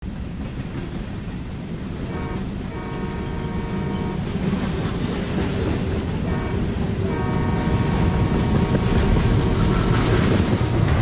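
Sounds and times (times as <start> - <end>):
train rumbling on rails: 0.0 - 11.0
held many-toned horn note: 2.1 - 4.3, 6.2 - 10.4.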